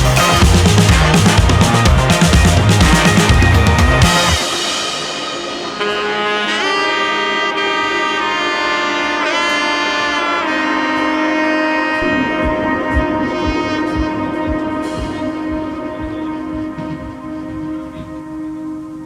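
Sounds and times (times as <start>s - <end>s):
soft beat: 0.0s - 4.6s, 12.0s - 18.9s
saxophone-like melody: 0.0s - 19.0s.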